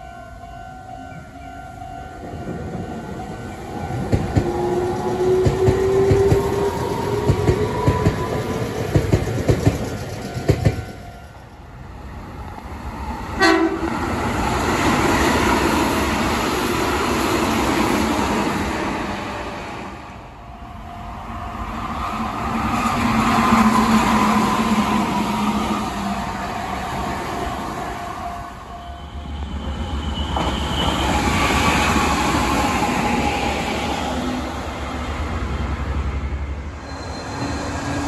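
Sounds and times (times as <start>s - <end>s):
rush of passing train: 0.0s - 38.0s
train wheels clacking over rail joints: 4.0s - 11.0s
train horn blast: 13.4s - 14.0s.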